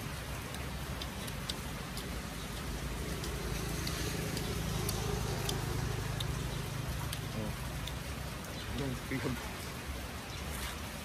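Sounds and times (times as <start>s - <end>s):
rain falling: 0.0s - 11.0s
scattered drips: 0.0s - 11.0s
vehicle engine hum passing: 1.2s - 9.7s.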